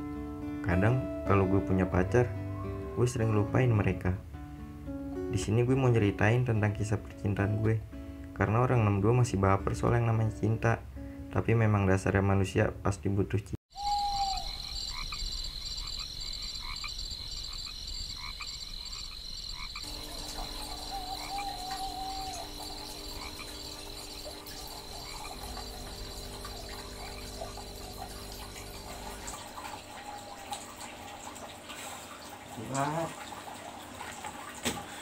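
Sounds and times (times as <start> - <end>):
long wavering call: 13.7 - 14.6, 19.9 - 30.9
chirping insects: 13.7 - 31.5
croaking frogs: 13.8 - 31.9
steady low hum: 19.9 - 30.1.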